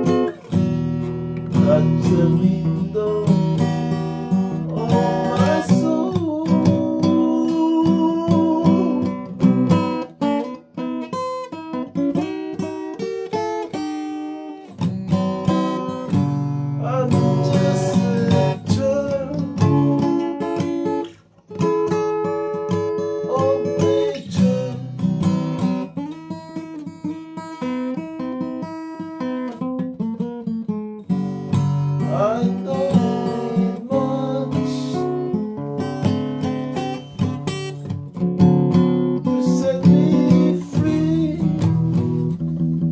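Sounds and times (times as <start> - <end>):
acoustic guitar playing: 0.0 - 42.9.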